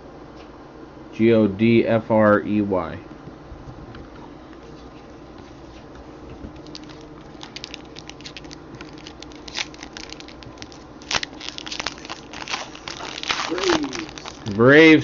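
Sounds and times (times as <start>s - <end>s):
faint steady hum: 0.0s - 15.0s
light handling clicks and crinkles: 5.7s - 14.6s.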